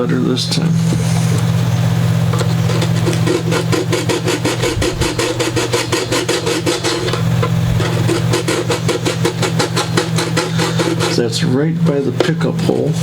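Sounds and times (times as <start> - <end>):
steady low hum: 0.0 - 13.0
hand sanding wood: 2.6 - 13.0.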